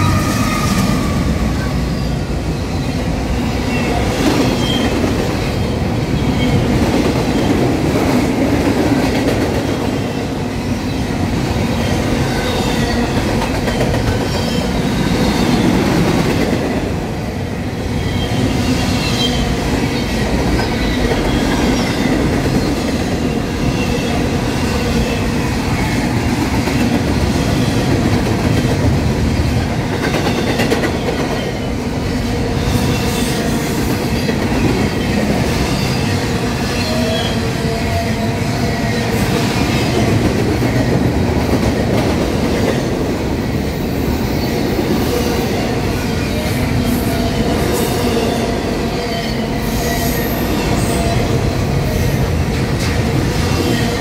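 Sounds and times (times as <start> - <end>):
steel wheels clattering on rails: 11.8 - 16.8.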